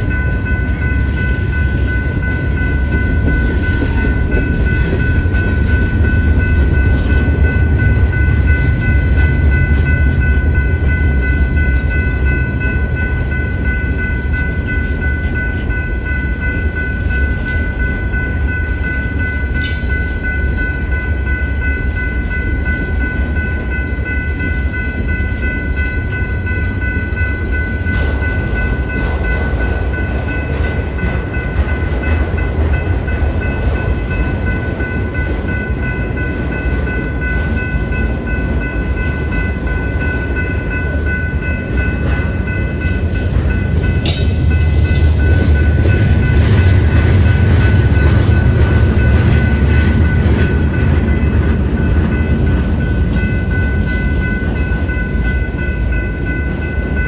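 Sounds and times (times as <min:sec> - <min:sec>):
crossing warning bell ringing: 0:00.0 - 0:57.0
freight train wheels rumbling: 0:00.0 - 0:57.0
sharp metal clank: 0:44.1 - 0:44.7.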